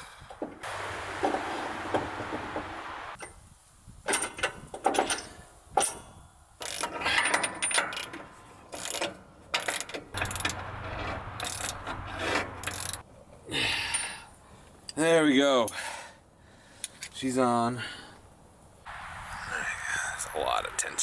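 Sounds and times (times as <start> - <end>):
metallic clanks and rattles: 4.1 - 13.0.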